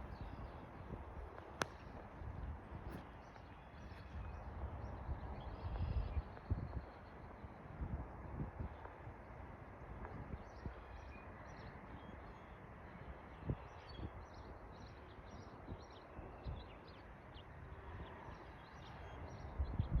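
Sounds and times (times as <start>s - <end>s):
small birds chirping: 0.0s - 2.0s
faint outdoor noise: 0.0s - 20.0s.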